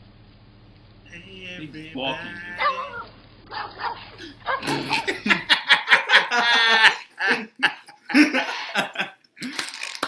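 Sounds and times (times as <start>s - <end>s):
men laughing: 1.2s - 3.0s, 4.2s - 9.2s
high-pitched laugh: 4.2s - 9.2s.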